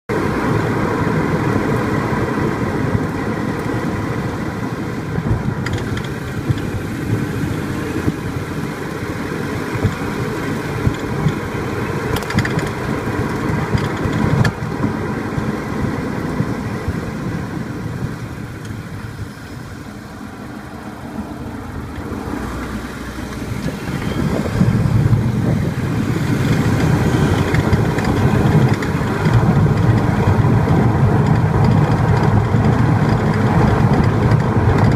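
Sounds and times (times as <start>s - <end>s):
car road and engine rumble: 0.1s - 34.9s
brake caliper knocking: 5.2s - 7.2s, 9.7s - 15.6s, 23.6s - 34.9s.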